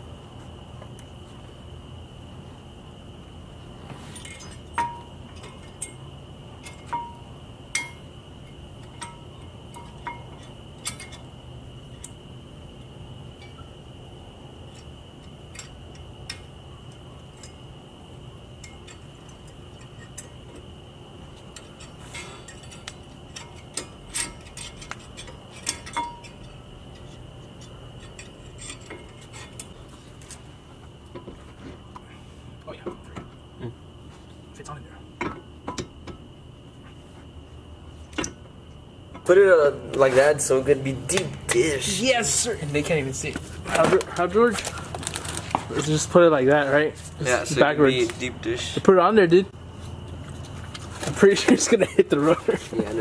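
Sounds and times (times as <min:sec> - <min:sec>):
metallic clinks of tools: 0:21.6 - 0:29.7.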